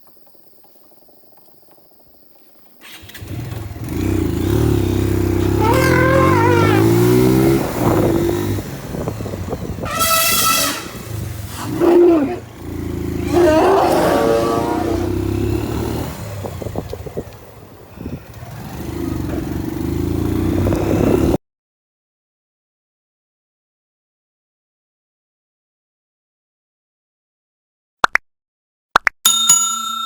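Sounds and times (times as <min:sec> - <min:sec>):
motorcycle engine running: 0:02.9 - 0:21.4
loud pitched calls: 0:05.4 - 0:07.6, 0:09.8 - 0:12.5, 0:13.2 - 0:15.2.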